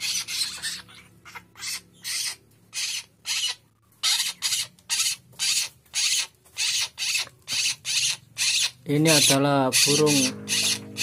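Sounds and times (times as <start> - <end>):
young bird rasping calls: 0.0 - 11.0.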